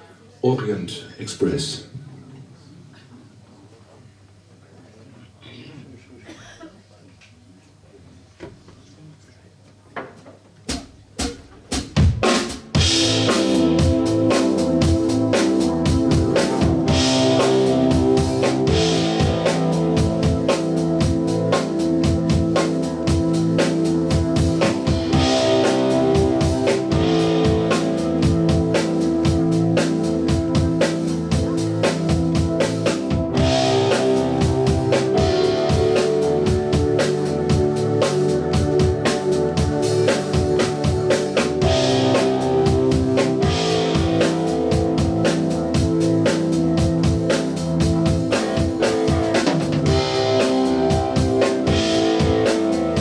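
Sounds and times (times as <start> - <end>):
drum kit beat: 10.7 - 53.0
live band playing: 10.7 - 53.0
guitar: 12.8 - 53.0.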